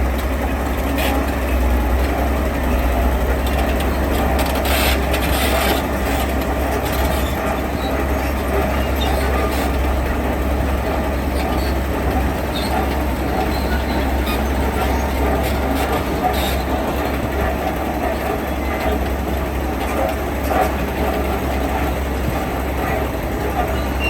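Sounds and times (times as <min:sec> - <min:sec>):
diesel construction machinery rumbling: 0:00.0 - 0:24.0.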